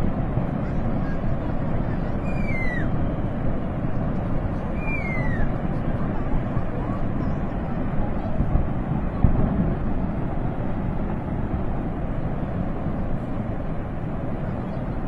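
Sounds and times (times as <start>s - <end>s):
flood rushing roar: 0.0s - 15.0s.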